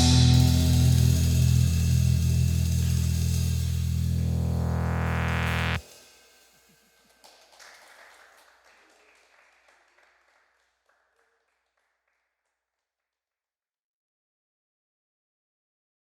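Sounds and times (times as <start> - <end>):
band playing held chord: 0.0 - 5.8.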